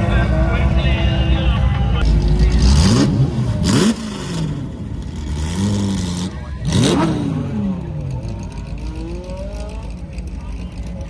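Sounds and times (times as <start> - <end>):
car engines revving hard: 2.0 - 11.0.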